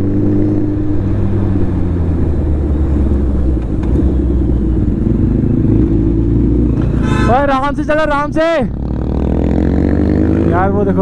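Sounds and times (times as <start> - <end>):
motorcycle engine running at speed: 0.0 - 11.0.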